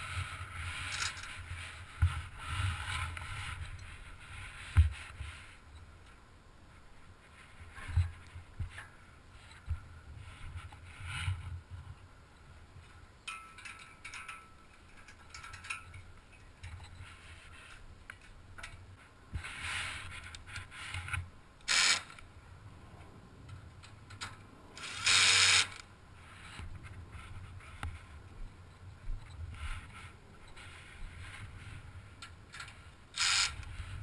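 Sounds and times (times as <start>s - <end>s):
ratchet strap rasp: 21.7s - 22.2s, 24.8s - 25.8s, 33.2s - 33.9s.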